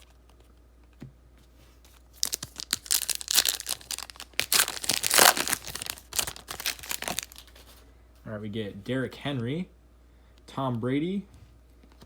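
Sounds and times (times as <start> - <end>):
foil wrapper crinkling and tearing: 2.1 - 7.8.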